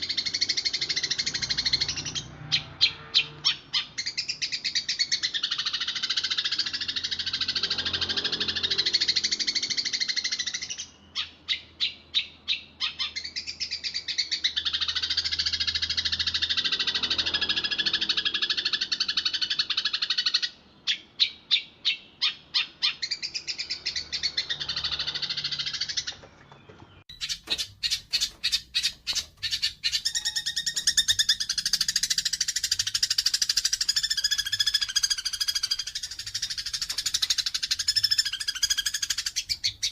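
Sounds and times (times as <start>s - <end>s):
sparrows chattering: 0.0s - 39.9s.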